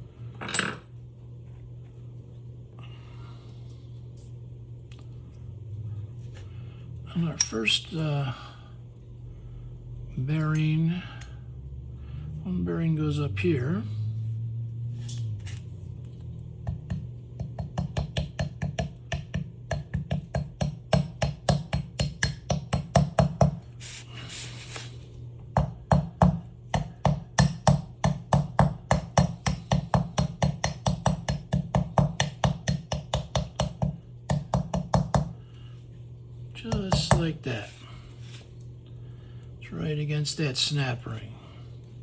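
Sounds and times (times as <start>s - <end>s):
low steady hum: 0.0s - 42.0s
hammer tapping ball bearing: 16.6s - 23.7s, 25.5s - 35.4s, 36.7s - 37.4s.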